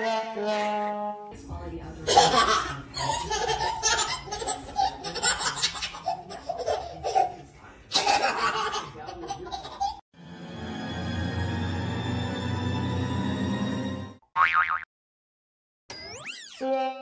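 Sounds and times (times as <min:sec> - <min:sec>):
baby laughing: 0:02.1 - 0:10.0.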